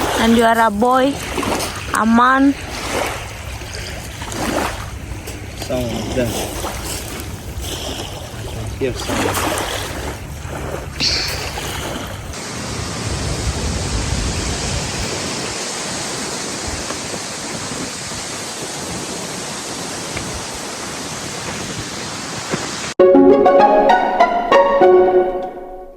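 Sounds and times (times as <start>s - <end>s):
string music: 23.0s - 25.9s.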